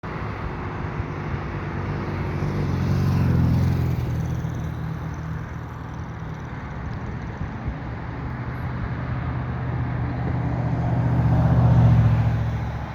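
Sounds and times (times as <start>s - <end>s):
vehicle passing by: 1.7s - 6.5s, 8.8s - 12.9s.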